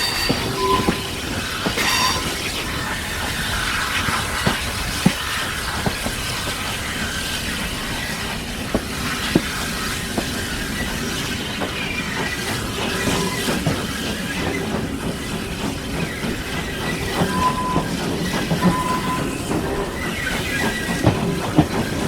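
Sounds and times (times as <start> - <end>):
train coaches rumbling: 0.0 - 22.0
wheels clicking over rail joints: 0.0 - 22.0.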